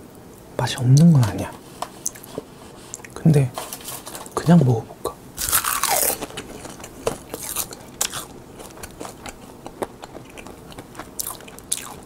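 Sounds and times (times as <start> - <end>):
chewing crisp seaweed: 5.4 - 12.0.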